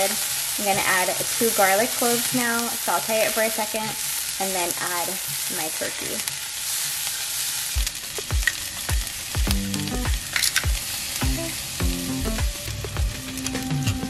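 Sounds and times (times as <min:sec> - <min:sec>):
onion sizzling in oil: 0:00.0 - 0:14.0
background music with low beat: 0:07.8 - 0:14.0.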